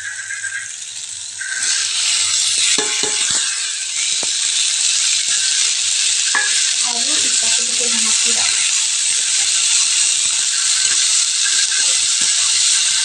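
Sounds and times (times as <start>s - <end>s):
hot oil sizzling: 0.0s - 13.0s
knocks against pan: 2.8s - 3.5s, 6.3s - 6.7s.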